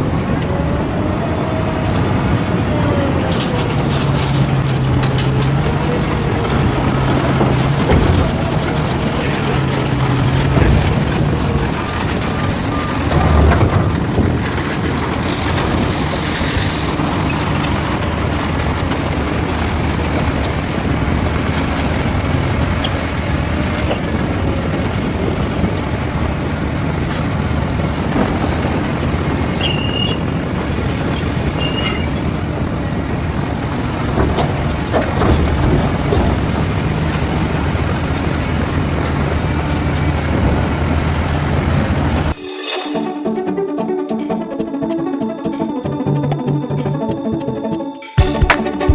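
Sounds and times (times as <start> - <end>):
diesel engine running: 0.0 - 42.4
mechanical clatter: 0.0 - 42.4
short high squeaks: 12.4 - 17.7, 29.6 - 30.3, 31.1 - 32.3.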